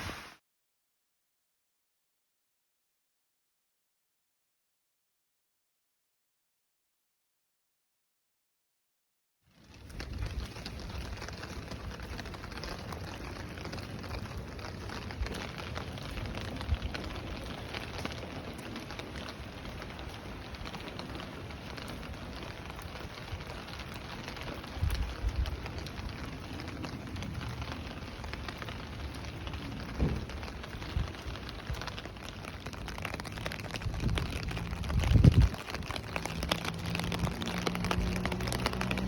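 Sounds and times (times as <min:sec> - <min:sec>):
steady rain patter: 0:00.0 - 0:00.4, 0:09.5 - 0:39.0
low rumbling: 0:32.7 - 0:39.0.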